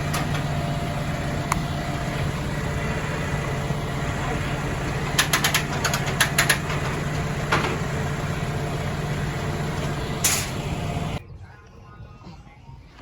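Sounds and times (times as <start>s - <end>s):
car engine running: 0.0s - 11.2s
sharp clicks and knocks: 5.1s - 7.8s.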